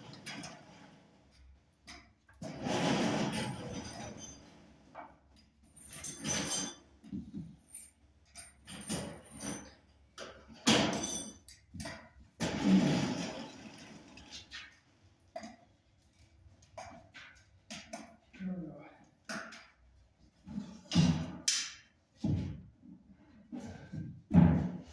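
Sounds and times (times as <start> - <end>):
heavy objects knocking and scraping: 10.6 - 14.6.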